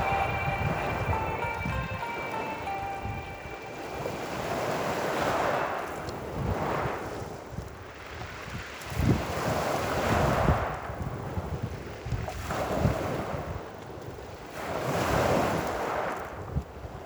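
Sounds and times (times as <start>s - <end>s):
wind gusting against microphone: 0.0s - 13.6s.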